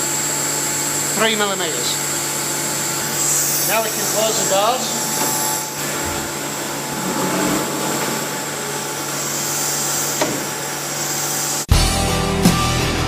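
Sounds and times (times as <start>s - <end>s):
machine rushing and humming: 2.2s - 11.6s.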